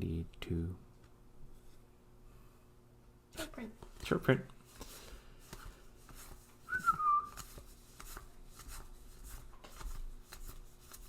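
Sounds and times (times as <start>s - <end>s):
cards being handled: 3.8s - 11.0s.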